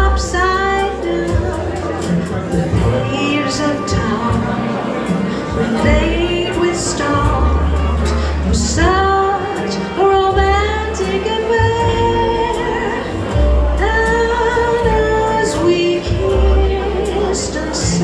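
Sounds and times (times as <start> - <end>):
backing accompaniment with bass: 0.0 - 18.0
woman singing a ballad: 0.0 - 18.0.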